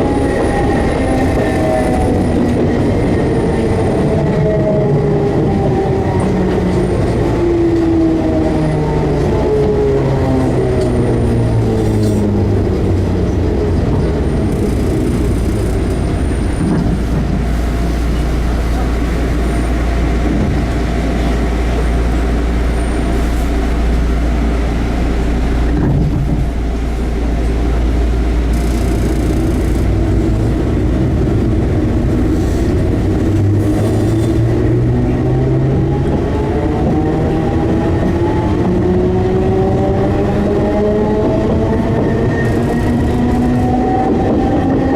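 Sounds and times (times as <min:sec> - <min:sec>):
train running rumble: 0:00.0 - 0:44.9
traction motor whine: 0:28.2 - 0:32.2.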